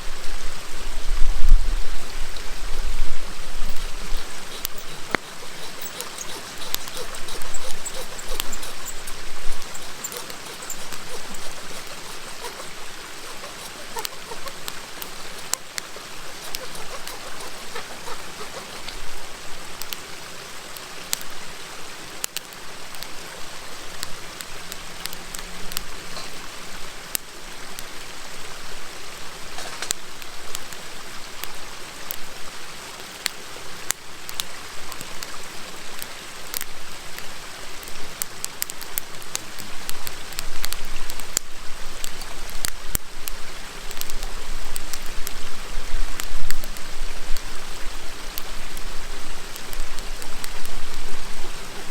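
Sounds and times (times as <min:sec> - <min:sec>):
river murmuring: 0:01.6 - 0:21.2.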